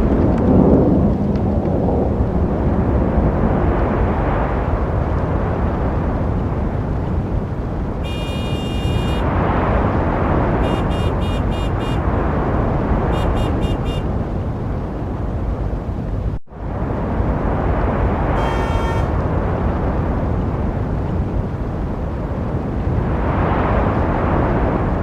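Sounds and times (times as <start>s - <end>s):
street traffic rumble: 0.0s - 25.0s
car horn honking: 8.0s - 9.3s, 10.6s - 12.1s, 13.1s - 14.1s, 18.3s - 19.2s.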